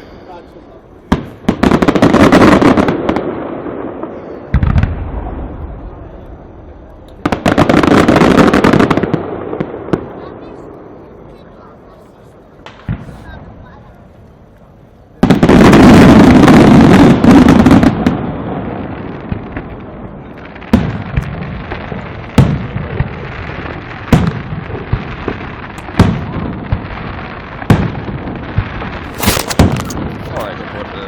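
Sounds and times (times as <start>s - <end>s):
fireworks bangs: 0.0s - 12.0s, 12.6s - 13.8s, 15.2s - 31.0s
fireworks crackling: 0.0s - 31.0s.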